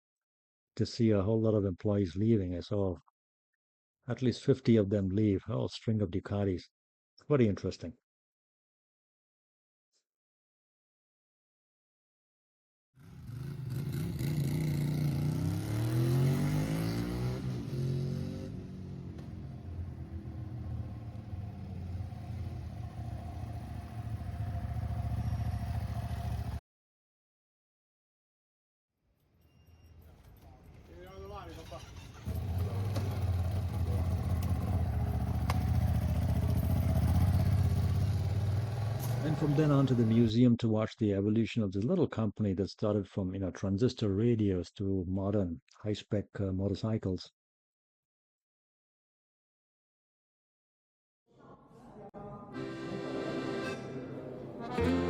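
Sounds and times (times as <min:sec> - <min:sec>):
motorcycle engine pulling away: 0:13.0 - 0:26.6, 0:31.4 - 0:40.2.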